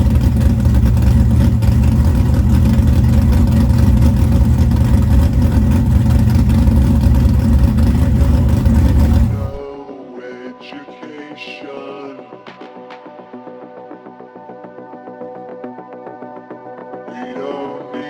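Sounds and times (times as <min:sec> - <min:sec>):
car engine running: 0:00.0 - 0:09.7.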